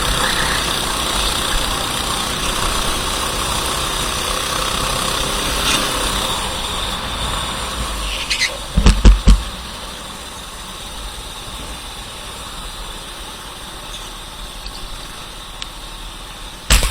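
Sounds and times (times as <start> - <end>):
kart engine running: 0.0 - 16.9
loud sharp knocks: 8.8 - 9.6.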